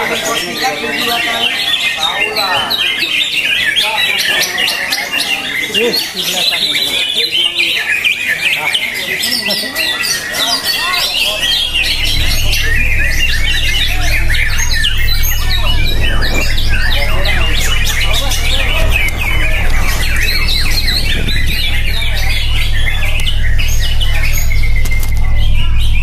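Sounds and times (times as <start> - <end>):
rapid birdsong chirps and trills: 0.0 - 26.0
steady low hum: 10.6 - 26.0.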